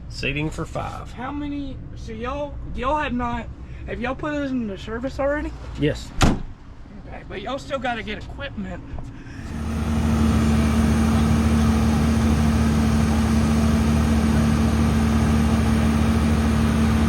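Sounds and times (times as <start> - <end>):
diesel engine idling: 9.4 - 17.0.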